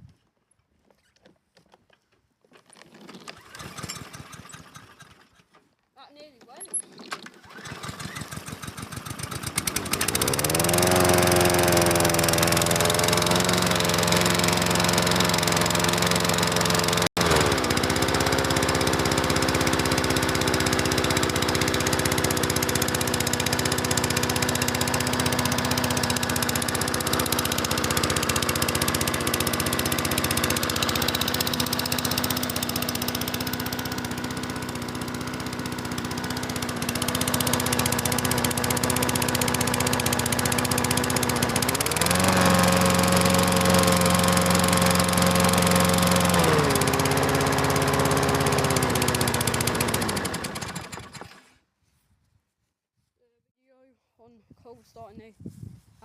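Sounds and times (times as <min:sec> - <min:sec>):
lawnmower engine starting and running: 0:02.7 - 0:05.8, 0:06.4 - 0:51.6.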